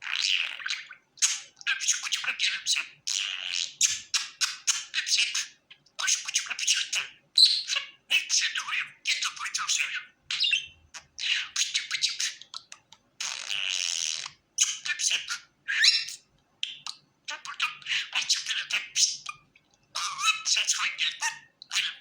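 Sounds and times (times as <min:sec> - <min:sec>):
budgerigar chattering: 0:00.0 - 0:19.4, 0:20.0 - 0:22.0
harsh bird squawk: 0:13.2 - 0:19.4, 0:20.0 - 0:22.0.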